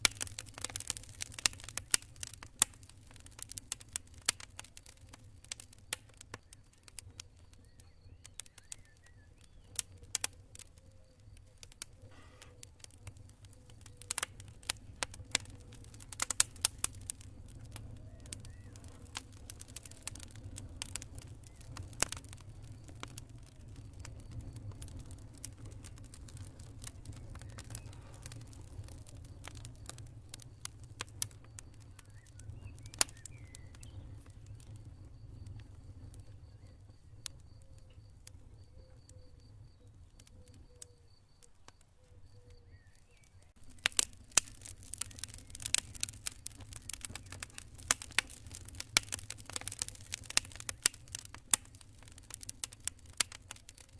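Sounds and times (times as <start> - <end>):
campfire low rumble: 0.0 - 53.9
crackling wood pops and snaps: 0.0 - 53.9.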